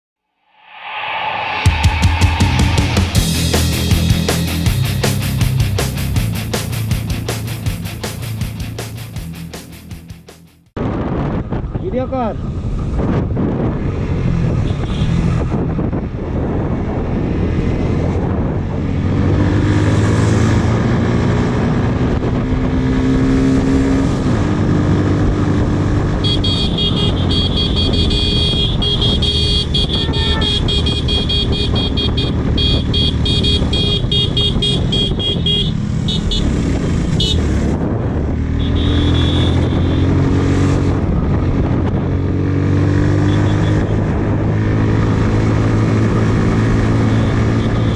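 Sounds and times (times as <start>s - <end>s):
motorcycle engine running: 3.2s - 10.7s, 25.2s - 47.9s.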